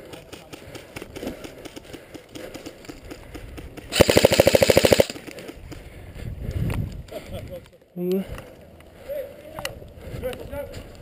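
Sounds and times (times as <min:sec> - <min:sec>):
airsoft gun full-auto burst: 0:03.9 - 0:05.2.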